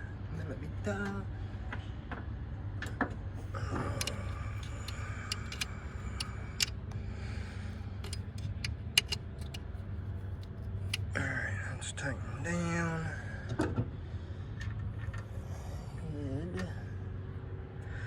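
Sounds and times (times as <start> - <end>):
steady low hum: 3.3 - 11.3
metal tools clinking: 4.0 - 6.7, 8.0 - 9.6.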